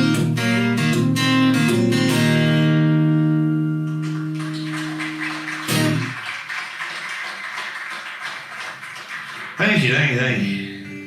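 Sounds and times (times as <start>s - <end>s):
acoustic guitar playing: 0.0s - 6.2s.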